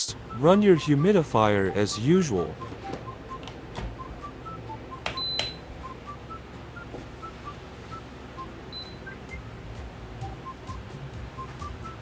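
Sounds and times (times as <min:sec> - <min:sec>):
sparse background music notes: 0:00.1 - 0:12.0
control panel button clicks: 0:05.0 - 0:05.6.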